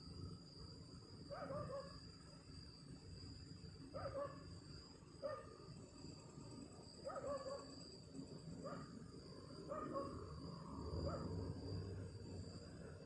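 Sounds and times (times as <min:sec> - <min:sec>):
insects droning: 0:00.0 - 0:13.0
distant dog barking: 0:01.3 - 0:02.0, 0:04.0 - 0:04.4, 0:07.1 - 0:07.7, 0:09.7 - 0:10.2.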